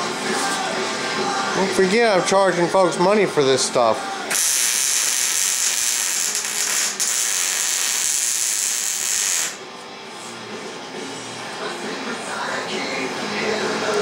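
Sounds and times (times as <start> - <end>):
welding arc hissing: 4.3 - 9.6.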